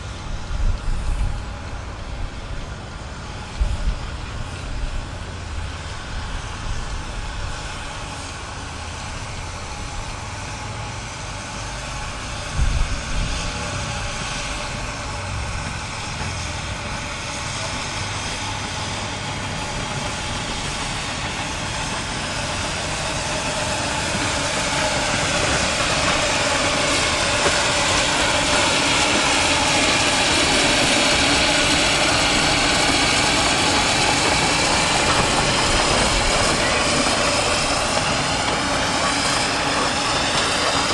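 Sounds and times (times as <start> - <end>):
miniature train running: 0.0 - 40.9.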